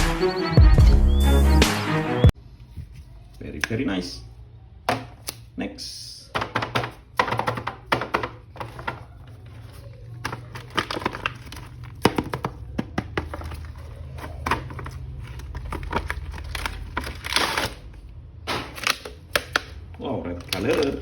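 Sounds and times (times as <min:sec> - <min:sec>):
plastic packaging clicks and crinkling: 0:06.8 - 0:21.0
packaging rustle: 0:08.6 - 0:21.0.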